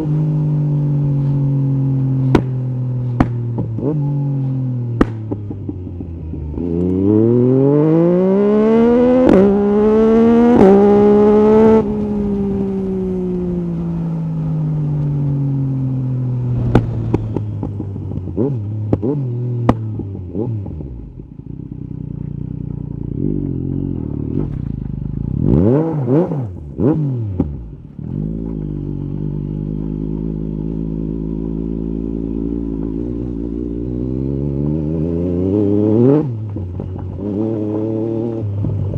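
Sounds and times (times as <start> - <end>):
motorcycle engine accelerating: 0.0 - 38.9
exhaust pops: 2.2 - 3.9, 4.9 - 5.7, 16.5 - 20.1.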